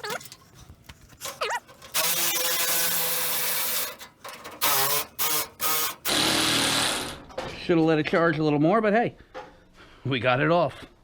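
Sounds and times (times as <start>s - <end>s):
impact wrench running: 1.8s - 7.2s.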